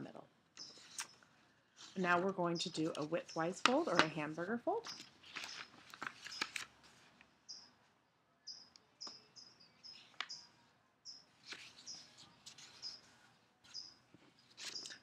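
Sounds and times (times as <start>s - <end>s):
small bird chirping: 0.6s - 1.2s, 7.5s - 7.8s, 8.4s - 13.1s, 13.7s - 14.0s
paper being folded: 4.8s - 7.2s, 11.4s - 13.8s.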